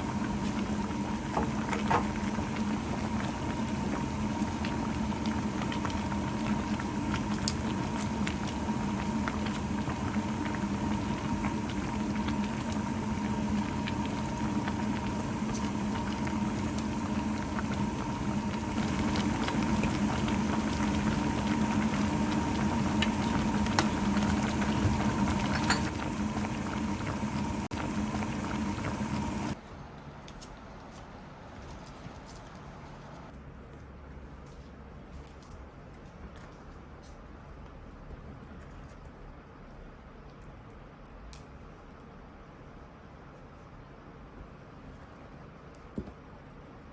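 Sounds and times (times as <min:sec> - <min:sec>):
food bubbling in a pot: 0:00.0 - 0:29.6
steady hum: 0:00.0 - 0:29.6.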